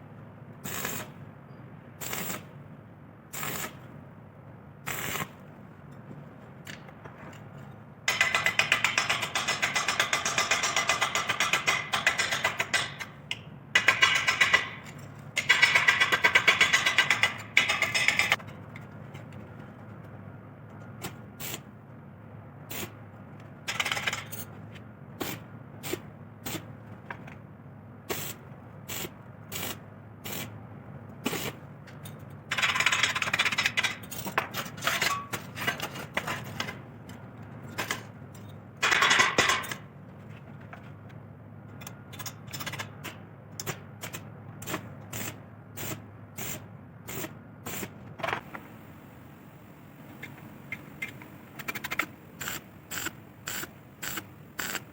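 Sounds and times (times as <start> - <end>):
steady low hum: 45.3 - 54.9.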